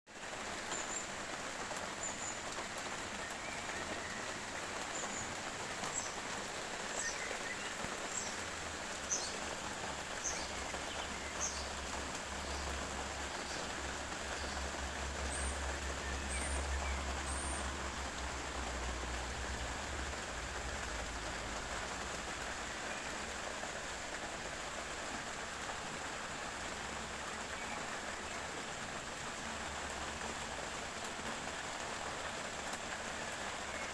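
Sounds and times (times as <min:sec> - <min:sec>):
steady rain falling: 0:00.1 - 0:33.9
birds chirping: 0:03.1 - 0:18.0.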